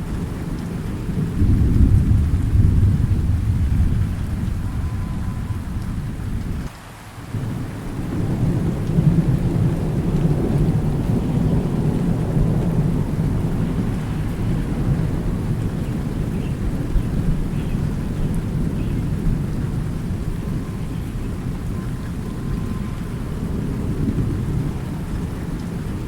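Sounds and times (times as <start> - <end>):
thunder rumbling: 0.0 - 6.7, 7.3 - 26.0
steady rain: 0.0 - 26.0.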